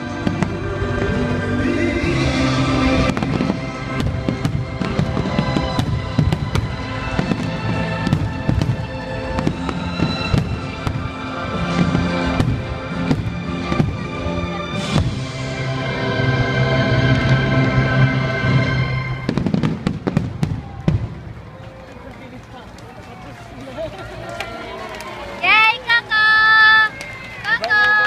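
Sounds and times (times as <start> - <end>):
fireworks bangs and crackles: 0.0 - 1.4, 2.2 - 17.8, 18.4 - 22.8
loud orchestral music: 0.0 - 20.0.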